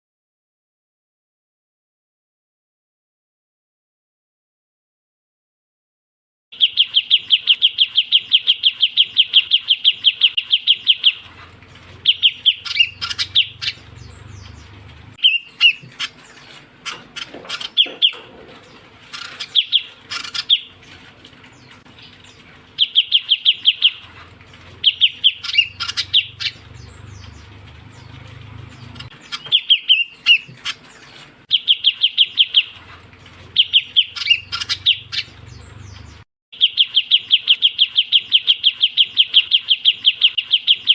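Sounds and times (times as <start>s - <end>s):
bird trilling: 6.6s - 11.4s, 12.0s - 18.5s, 19.1s - 20.8s, 21.6s - 24.2s, 24.8s - 32.9s, 33.5s - 40.9s
bird chirps: 6.6s - 40.9s.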